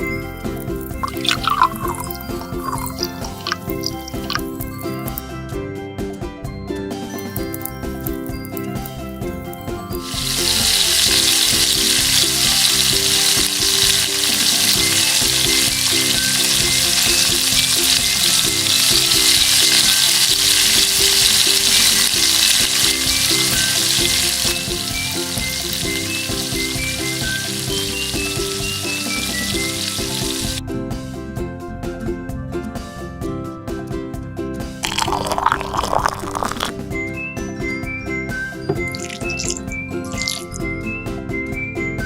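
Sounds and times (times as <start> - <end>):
chicken sizzling in hot oil: 0.4 - 5.2, 9.8 - 30.6, 34.8 - 36.8, 38.8 - 40.7.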